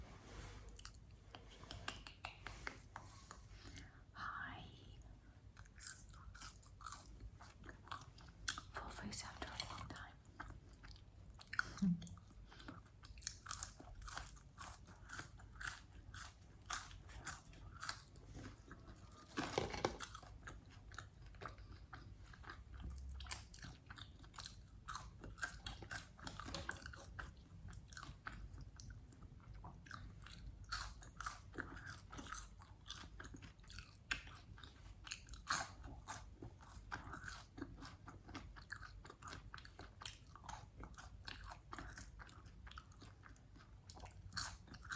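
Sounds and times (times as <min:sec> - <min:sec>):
crunching and chewing fried chicken: 0:05.4 - 0:44.9.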